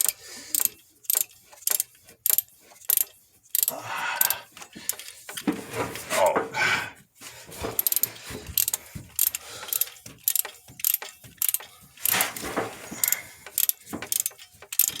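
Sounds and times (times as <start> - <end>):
ratchet wrench clicking: 0.0 - 5.4, 7.8 - 12.2, 13.0 - 15.0.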